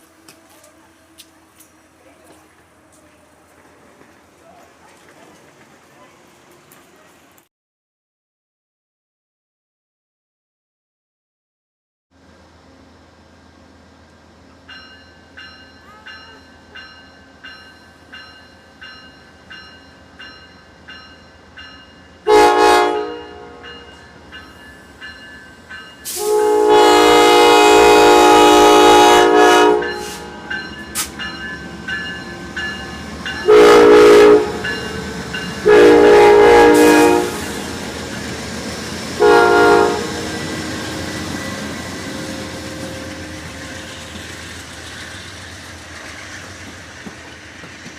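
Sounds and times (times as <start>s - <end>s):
rail noise: 0.0s - 7.5s, 12.2s - 47.9s
train horn blasts: 22.2s - 23.9s, 26.0s - 31.1s, 33.4s - 35.0s, 35.6s - 38.0s, 39.2s - 43.7s
bell ringing: 29.8s - 33.5s.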